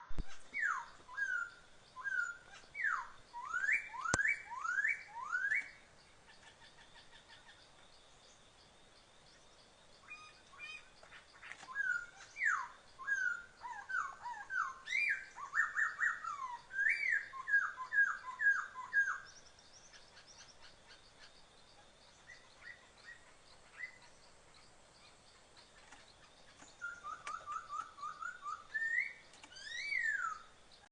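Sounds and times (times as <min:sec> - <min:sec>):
songbird whistling: 0:00.1 - 0:05.8, 0:11.7 - 0:19.4, 0:26.7 - 0:30.5.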